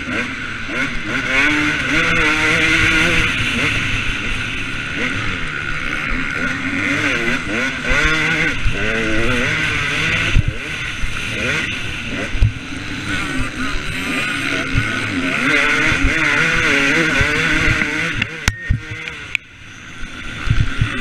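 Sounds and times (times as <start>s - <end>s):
two-stroke motorbike engine revving: 0.0s - 21.0s.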